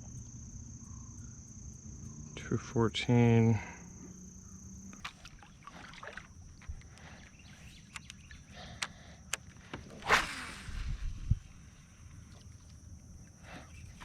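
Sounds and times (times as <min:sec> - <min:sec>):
insect buzz: 0:00.0 - 0:14.0
loud swish: 0:09.9 - 0:11.6.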